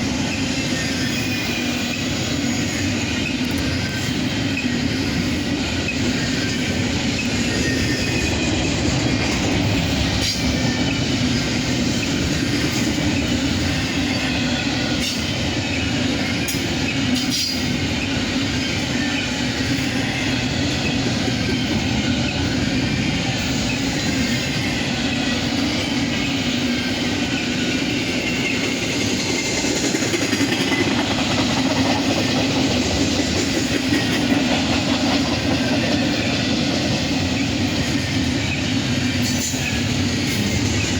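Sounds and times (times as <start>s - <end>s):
freight train wheels rumbling: 0.0s - 40.9s
wheels clicking over rail joints: 23.4s - 40.9s.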